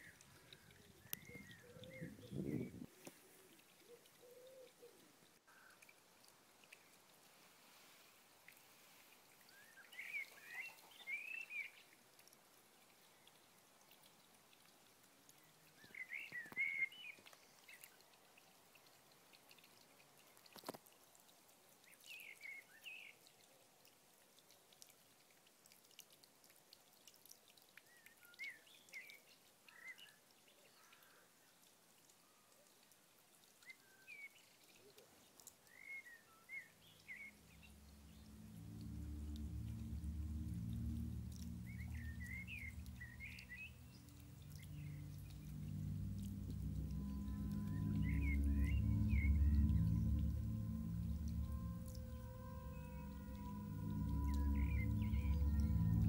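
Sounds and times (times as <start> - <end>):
low sustained music tones: 0.0 - 5.0, 35.7 - 56.0.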